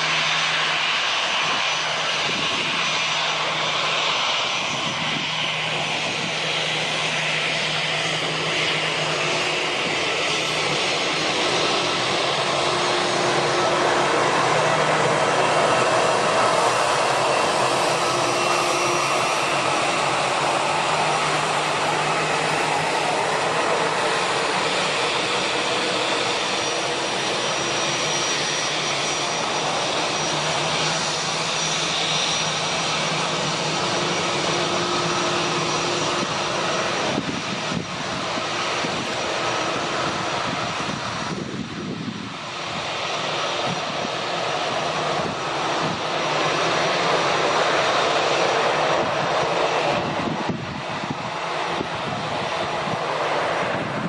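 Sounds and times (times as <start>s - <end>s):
jet engines running: 0.0s - 54.0s.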